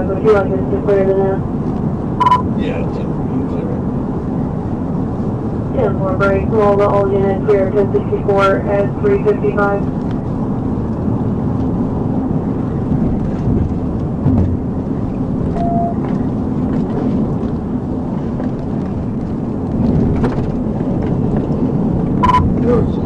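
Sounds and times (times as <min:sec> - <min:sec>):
car engine and road noise: 0:00.0 - 0:23.0
short beep: 0:02.2 - 0:02.5, 0:15.6 - 0:16.0, 0:22.2 - 0:22.5.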